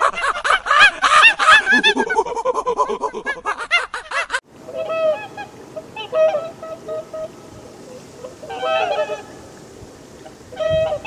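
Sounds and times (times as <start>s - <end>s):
gulls calling: 3.6s - 11.0s
chorus of rapid animal calls: 4.7s - 9.4s, 10.2s - 11.0s.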